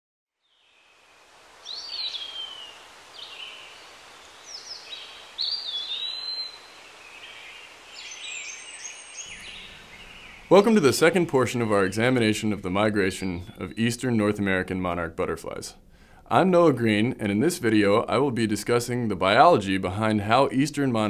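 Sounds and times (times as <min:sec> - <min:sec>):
steady background hiss: 0:00.4 - 0:21.0
birds whistling calls: 0:01.6 - 0:13.9.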